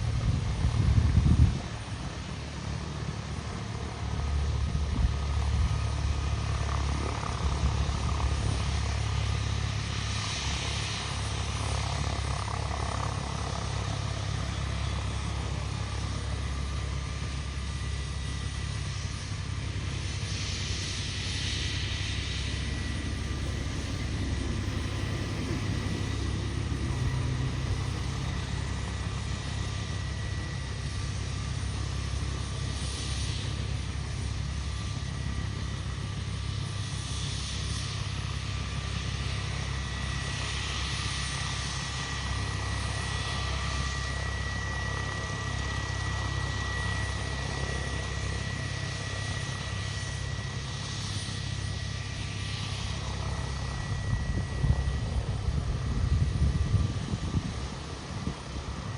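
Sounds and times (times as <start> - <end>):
helicopter rotor drone: 0.0 - 58.9
turbine engine whine: 0.0 - 58.9.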